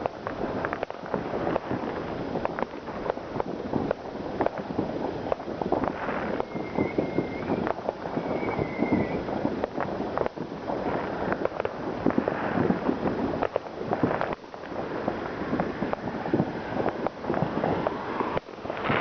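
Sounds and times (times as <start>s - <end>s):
fireworks banging and crackling: 0.0s - 19.0s
high steady whistle: 6.2s - 9.3s.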